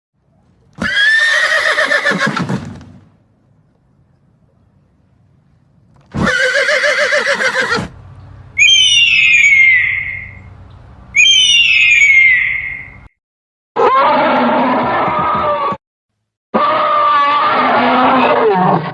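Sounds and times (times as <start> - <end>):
horse whinnying: 0.8 - 2.7, 6.1 - 7.9, 8.6 - 10.3, 11.2 - 12.9, 13.8 - 15.8, 16.6 - 18.9
high-pitched animal calls gliding down: 8.6 - 10.5, 11.1 - 13.1.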